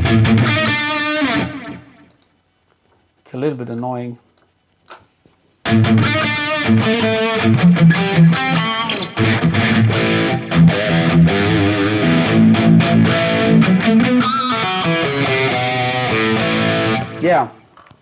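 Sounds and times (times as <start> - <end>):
distorted electric guitar riffs: 0.0 - 2.1, 5.6 - 17.4.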